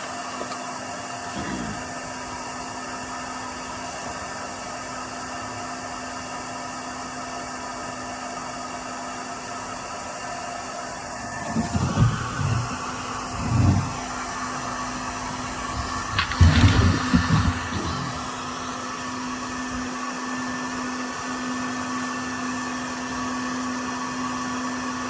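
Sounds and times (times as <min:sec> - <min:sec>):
low bumps: 0:11.4 - 0:18.6.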